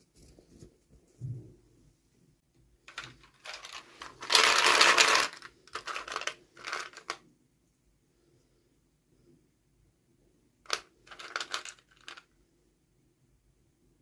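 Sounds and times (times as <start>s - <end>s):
plastic toy pieces rustling and clicking: 2.9s - 7.2s, 10.7s - 12.3s.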